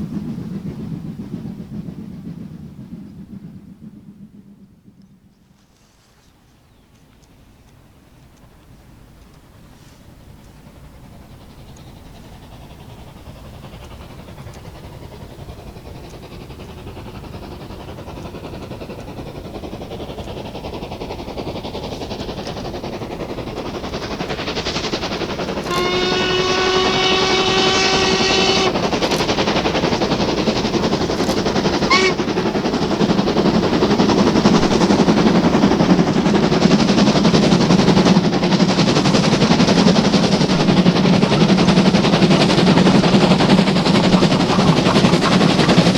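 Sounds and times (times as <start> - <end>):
steam locomotive exhaust beats: 0.0 - 45.9
steam whistle blast: 25.4 - 29.4, 31.6 - 32.8.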